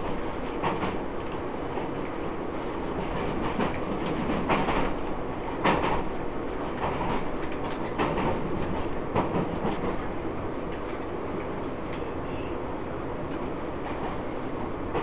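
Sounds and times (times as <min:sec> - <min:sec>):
train wheels rumbling: 0:00.0 - 0:15.0
train wheels clacking: 0:03.0 - 0:10.1.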